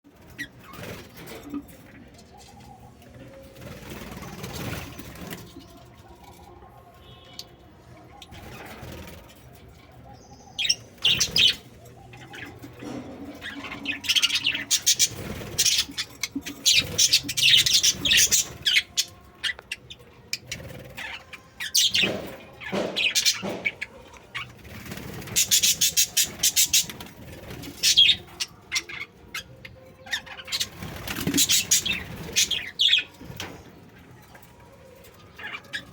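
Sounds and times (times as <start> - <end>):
parrots chirping: 10.1 - 24.6, 25.2 - 27.0, 27.7 - 33.2.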